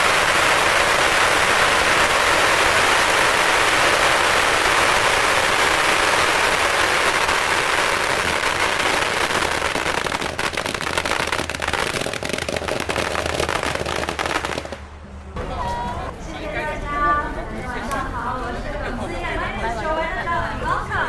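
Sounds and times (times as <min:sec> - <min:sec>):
firecrackers cracking: 0:00.0 - 0:15.6.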